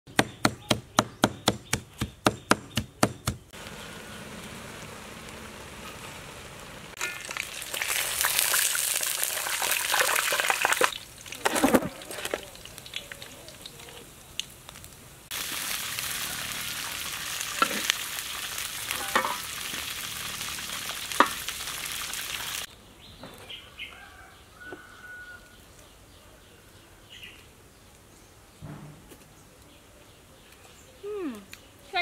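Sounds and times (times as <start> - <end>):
food sizzling in oil: 3.6 - 14.6, 15.3 - 22.7.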